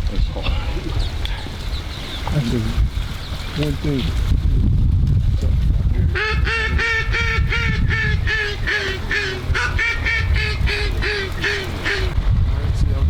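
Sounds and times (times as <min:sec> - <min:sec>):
duck quacking rapidly: 0:06.0 - 0:12.2.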